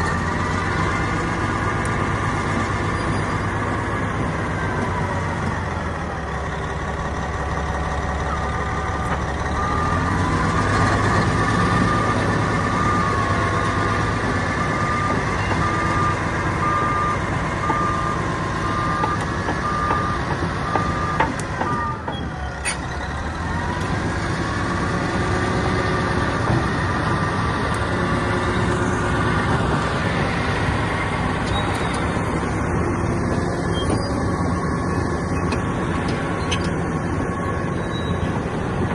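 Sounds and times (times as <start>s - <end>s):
bulldozer diesel engine: 0.0s - 38.9s
reversing alarm beeping: 9.4s - 22.6s, 37.2s - 38.3s.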